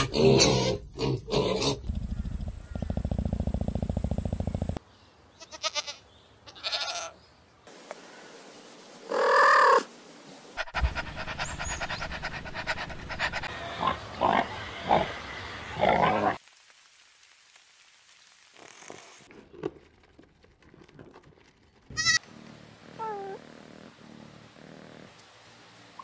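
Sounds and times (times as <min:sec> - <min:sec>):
pigs grunting: 0:00.0 - 0:01.9, 0:10.6 - 0:15.2
low rapid rattling: 0:01.9 - 0:04.8.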